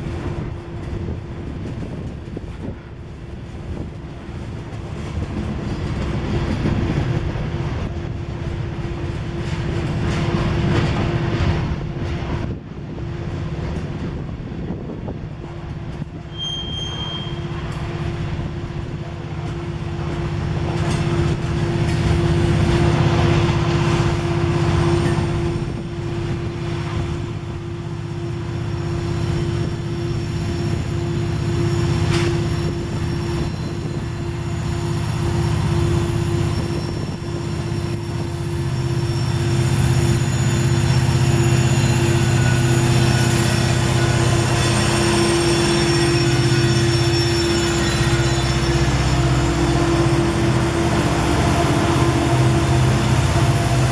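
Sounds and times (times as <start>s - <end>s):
freight train rumble: 0.0s - 53.9s
high squeal: 16.2s - 18.7s, 20.4s - 53.9s
humming tone: 28.9s - 53.9s.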